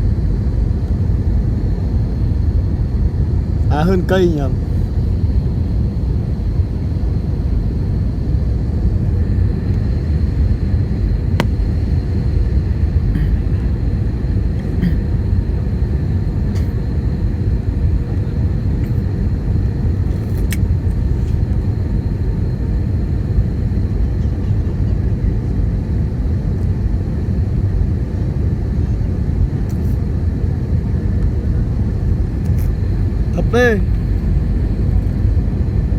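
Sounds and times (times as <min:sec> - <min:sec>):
airliner cabin roar: 0:00.0 - 0:35.9
faint high whine: 0:21.8 - 0:35.9.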